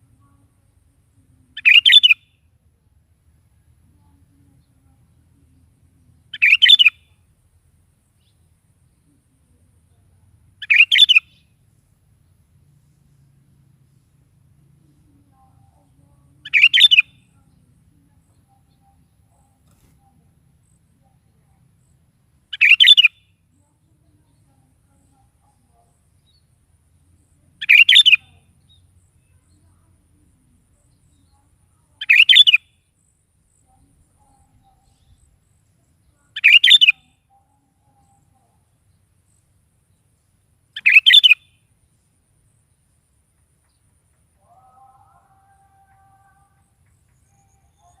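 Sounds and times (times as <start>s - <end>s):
bulbul singing short phrases: 1.2s - 2.2s, 6.2s - 7.1s, 14.9s - 20.1s, 27.2s - 28.6s, 29.2s - 32.6s, 33.5s - 38.7s, 40.8s - 41.4s.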